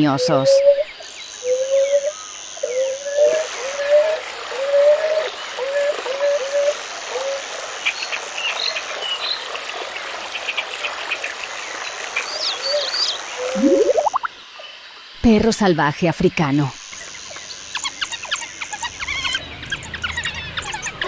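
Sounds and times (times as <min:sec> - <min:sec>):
short rising calls: 0:13.4 - 0:14.3
quick high chirps: 0:13.5 - 0:14.3.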